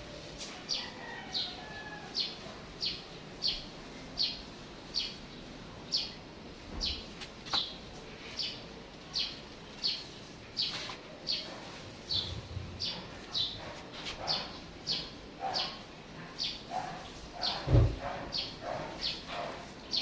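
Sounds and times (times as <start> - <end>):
bird chirping: 9.2 - 13.6.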